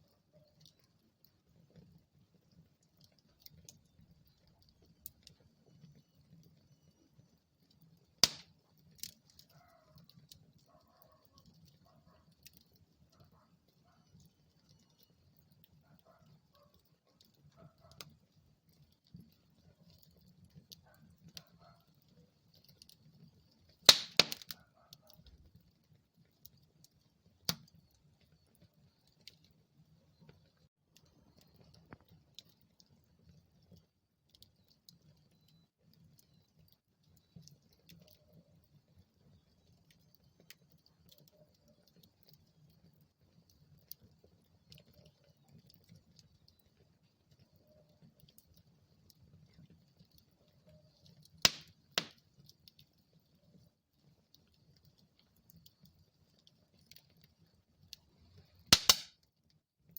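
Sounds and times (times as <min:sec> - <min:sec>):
wood fire crackling: 0:00.0 - 0:59.9
sharp pops of fire: 0:08.2 - 0:09.4, 0:23.8 - 0:24.6, 0:27.5 - 0:27.8, 0:51.4 - 0:52.3, 0:58.7 - 0:59.2.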